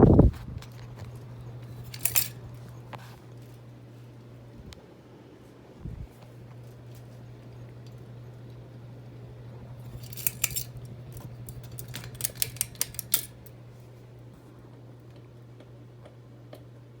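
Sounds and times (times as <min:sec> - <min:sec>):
fan motor humming: 0:00.0 - 0:17.0
metallic clicks and rattles: 0:00.6 - 0:02.7, 0:09.9 - 0:13.6.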